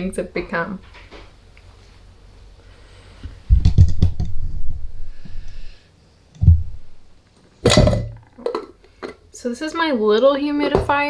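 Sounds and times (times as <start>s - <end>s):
clicks and knocks: 7.7s - 8.2s
thump: 7.7s - 8.2s.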